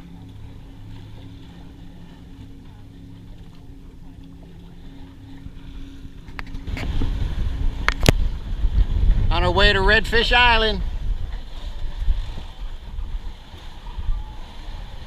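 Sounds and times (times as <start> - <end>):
boat engine humming: 0.0 - 15.0
wind buffeting microphone: 4.6 - 15.0.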